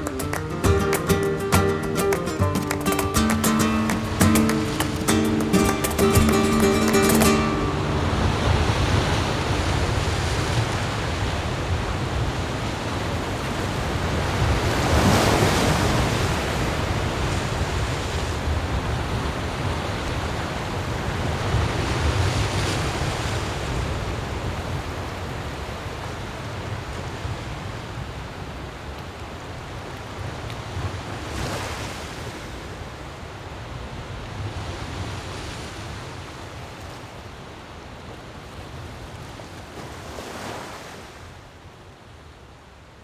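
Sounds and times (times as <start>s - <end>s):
sea surf washing in: 0.0s - 12.0s.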